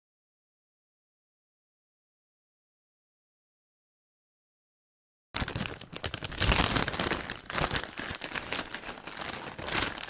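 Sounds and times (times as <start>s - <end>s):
foil wrapper crinkling: 5.4s - 10.0s.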